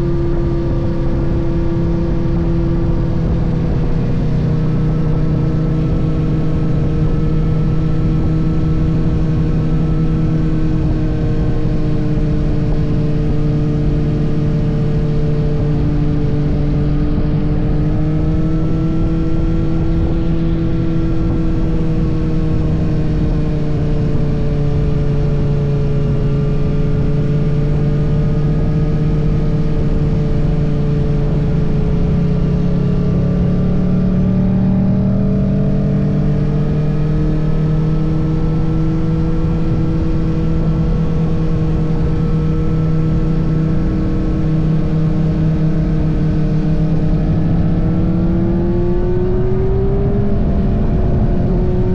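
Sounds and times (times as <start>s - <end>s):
motorcycle engine cruising: 0.0s - 51.9s.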